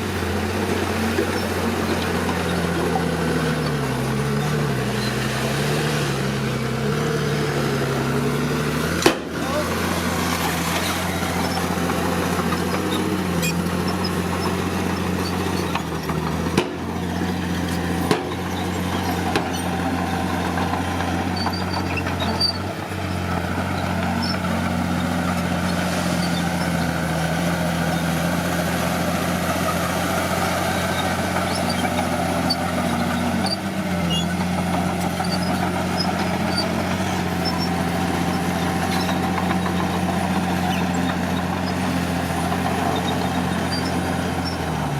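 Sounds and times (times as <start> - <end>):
heavy machine diesel engine running: 0.0 - 44.9.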